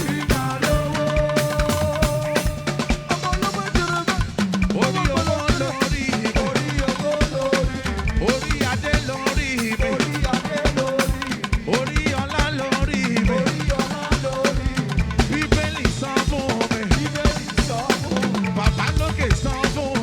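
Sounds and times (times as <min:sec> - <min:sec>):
drum kit beat: 0:00.0 - 0:20.0
live band playing gospel music: 0:00.0 - 0:20.0.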